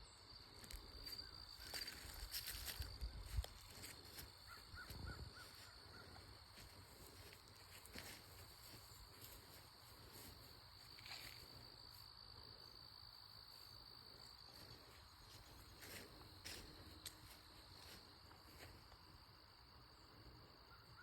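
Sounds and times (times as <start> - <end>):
high-pitched insect trill: 0.0 - 5.8, 7.0 - 16.6
faint ticks and rustles: 0.5 - 12.6, 13.5 - 19.2.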